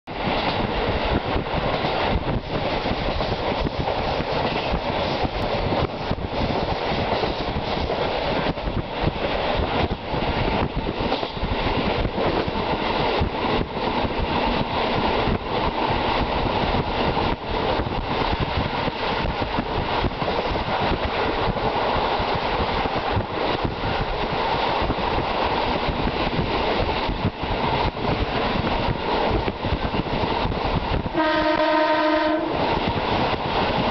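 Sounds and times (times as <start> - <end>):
rail-joint clicks: 0.1 - 31.6
train wheels rumbling on rail: 0.1 - 33.9
train horn: 31.1 - 32.7.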